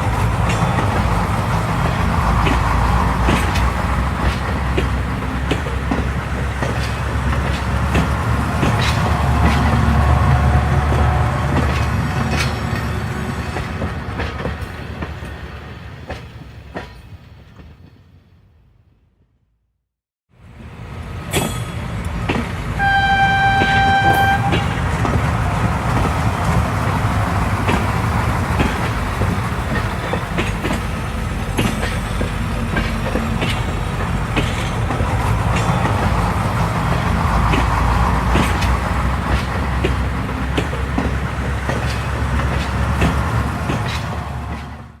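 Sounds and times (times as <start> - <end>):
wheels clicking over rails: 0.0 - 15.3, 23.5 - 45.0
train rumble: 0.0 - 19.2, 20.4 - 45.0
train horn tone: 22.8 - 25.0.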